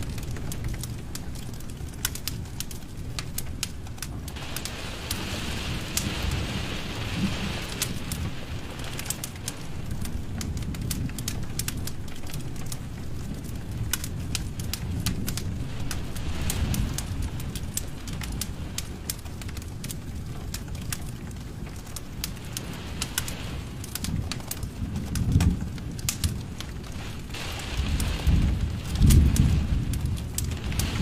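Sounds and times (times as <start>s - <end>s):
low steady rumble: 0.0s - 31.0s
wood fire crackling and popping: 0.0s - 31.0s
soft hiss: 4.3s - 10.3s.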